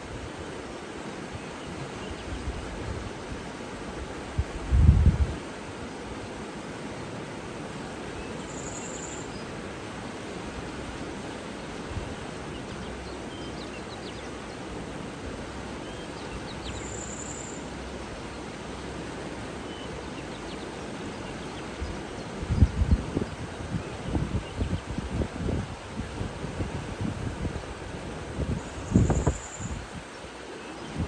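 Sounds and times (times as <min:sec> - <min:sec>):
flowing water rushing: 0:00.0 - 0:31.0
faint high bird chirps: 0:08.2 - 0:09.4, 0:15.8 - 0:17.7, 0:28.6 - 0:29.8.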